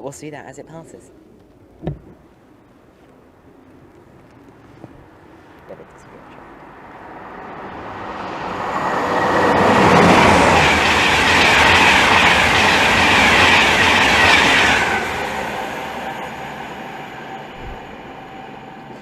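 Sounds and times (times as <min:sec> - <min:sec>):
train wheels rushing on rail: 0:06.7 - 0:19.0.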